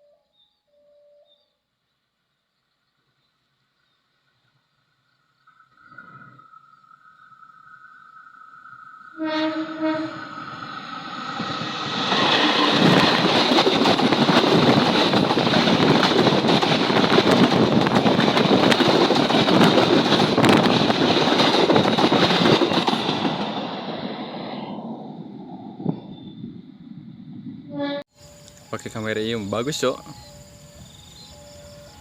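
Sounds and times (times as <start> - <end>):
train passing at speed: 7.0 - 32.0.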